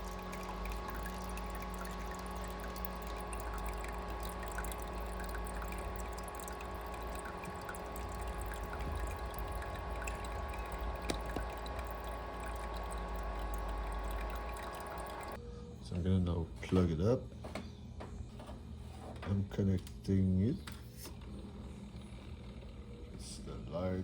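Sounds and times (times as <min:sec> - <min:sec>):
water trickling: 0:00.0 - 0:15.4
steady hum: 0:00.0 - 0:24.0.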